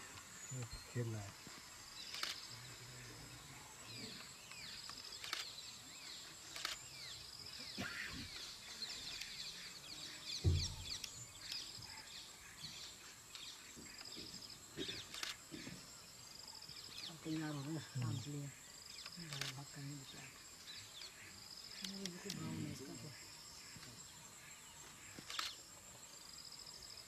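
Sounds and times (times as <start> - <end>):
low thump: 10.4 - 11.0.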